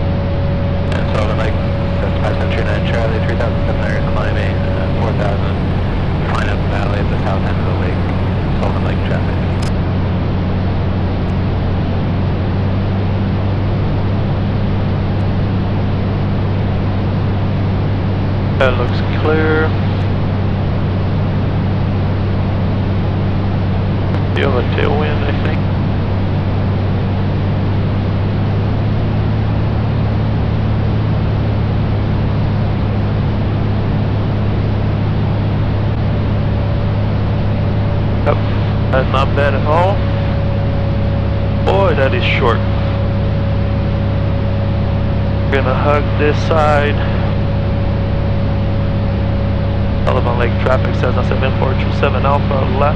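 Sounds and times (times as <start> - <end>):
rushing air noise: 0.0 - 12.9
light aircraft engine droning: 0.0 - 52.9.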